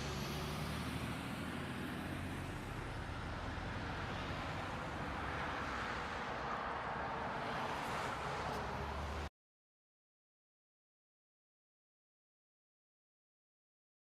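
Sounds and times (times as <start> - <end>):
vehicle engine and road hum: 0.0 - 9.3.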